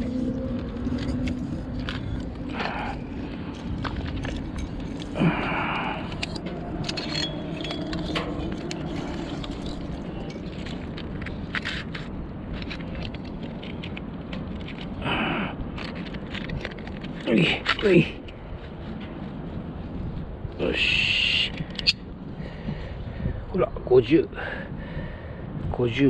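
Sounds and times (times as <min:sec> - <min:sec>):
low background hum: 0:00.0 - 0:26.0
clicks and scraping from handling: 0:06.0 - 0:15.0.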